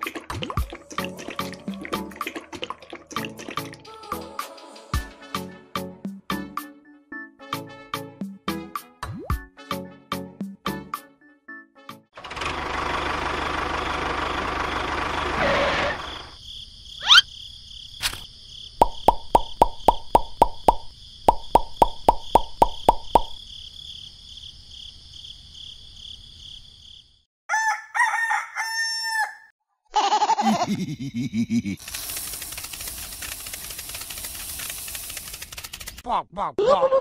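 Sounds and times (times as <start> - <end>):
rooster crowing: 27.5 - 29.5
sharp clicks: 31.8 - 36.0.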